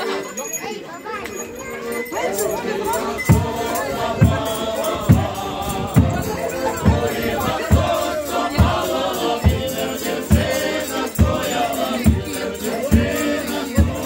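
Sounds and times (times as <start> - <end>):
group singing a carol: 1.9 - 14.0
steady drum beat: 2.8 - 14.0.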